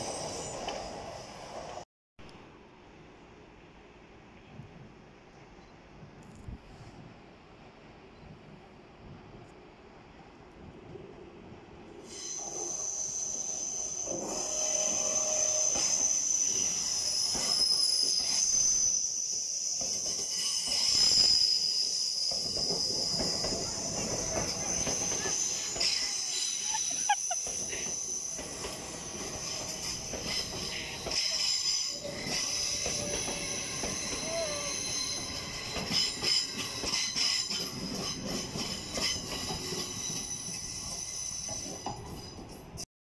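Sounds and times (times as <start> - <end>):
train wheels squealing: 0.0 - 1.8, 12.0 - 42.8
rumble of train coaches: 0.0 - 42.8.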